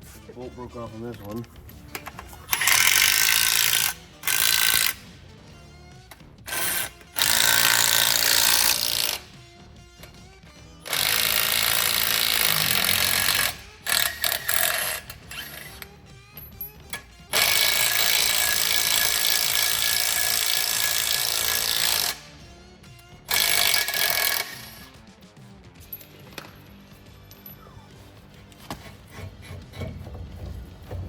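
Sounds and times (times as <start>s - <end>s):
power tool running: 2.5s - 5.1s, 6.5s - 9.3s, 10.9s - 15.8s.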